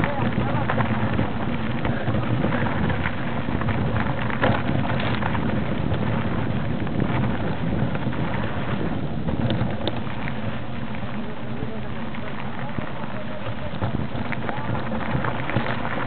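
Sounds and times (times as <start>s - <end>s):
small clicks and knocks: 0.0s - 6.1s, 9.3s - 10.4s
noisy rush: 0.0s - 16.0s
vehicle rumble on rough track: 0.0s - 16.0s.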